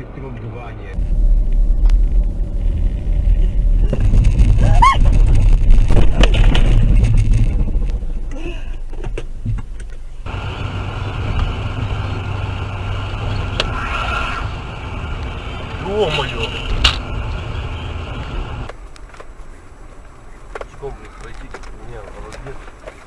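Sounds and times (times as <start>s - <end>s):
car engine and road rumble: 0.0s - 23.0s
rising high tone: 10.7s - 15.2s.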